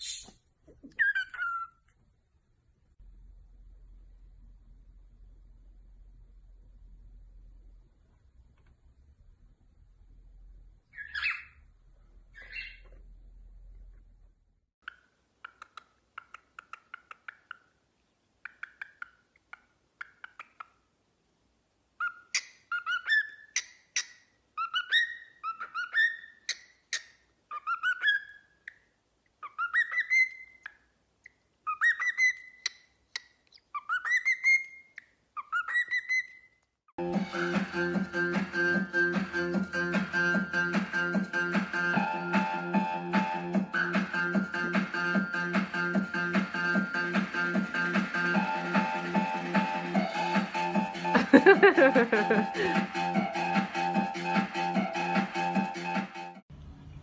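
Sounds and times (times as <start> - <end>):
parrot calls: 0.9 - 1.9, 10.9 - 11.6, 12.3 - 12.9, 22.0 - 36.6.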